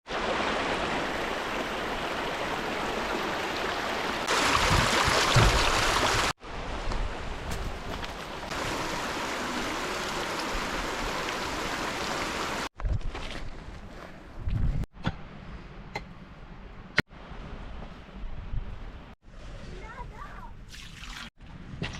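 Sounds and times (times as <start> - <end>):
flowing water rushing: 0.0 - 7.4, 8.1 - 12.7.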